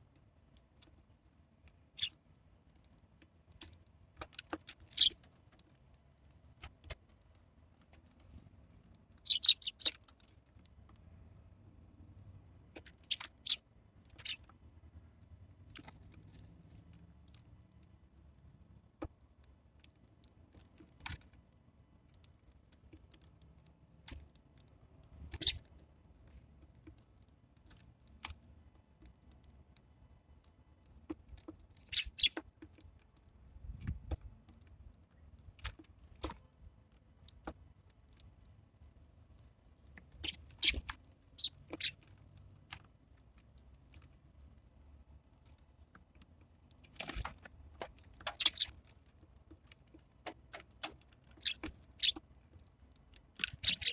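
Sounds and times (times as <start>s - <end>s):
birds pecking seeds on wood: 2.8s - 8.2s, 9.0s - 10.9s, 12.8s - 14.5s, 30.4s - 38.6s, 39.9s - 44.5s, 45.2s - 53.9s.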